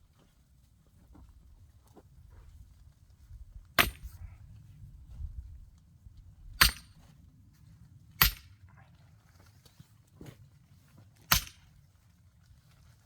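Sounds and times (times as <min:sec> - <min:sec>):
axe striking a log: 0:03.8 - 0:04.2, 0:06.6 - 0:07.0, 0:08.2 - 0:08.5, 0:11.3 - 0:11.6.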